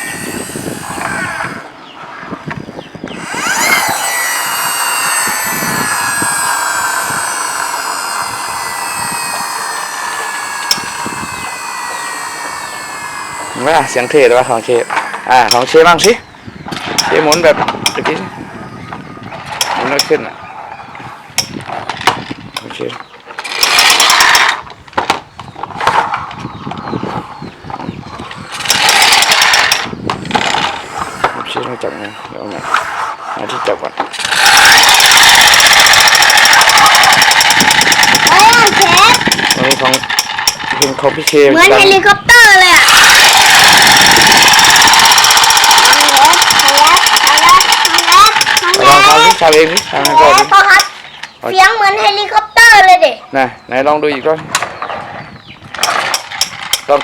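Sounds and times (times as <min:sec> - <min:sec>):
toy friction motor whirring: 0:00.0 - 0:20.2, 0:23.4 - 0:53.0.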